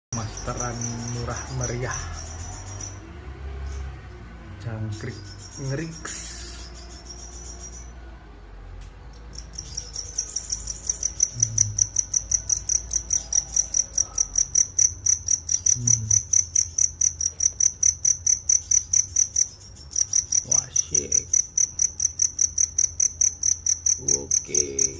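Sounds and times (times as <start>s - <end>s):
cricket chirping: 0.2s - 24.9s
faint continuous trill: 0.2s - 24.9s.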